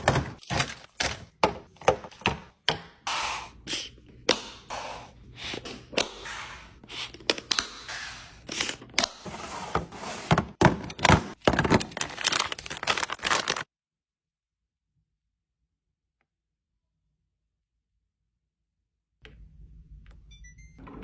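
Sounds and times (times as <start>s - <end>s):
household items being handled: 0.0s - 2.8s, 6.8s - 13.7s.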